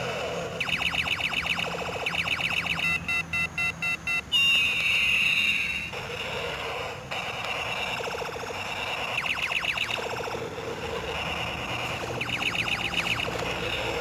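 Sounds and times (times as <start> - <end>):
electronic beeps: 0.6 - 6.0, 7.3 - 10.3, 11.1 - 13.9.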